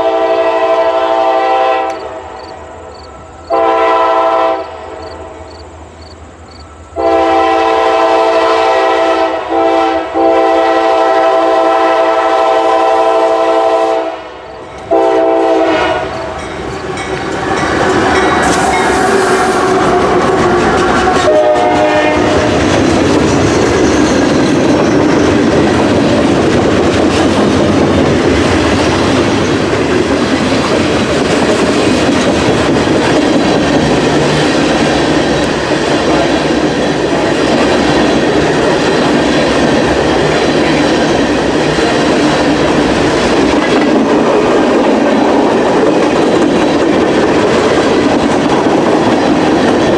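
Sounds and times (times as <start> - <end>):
train horn: 0.0 - 5.5, 6.8 - 22.8
train wheels clattering: 14.6 - 49.9
locomotives rumbling: 15.6 - 49.9.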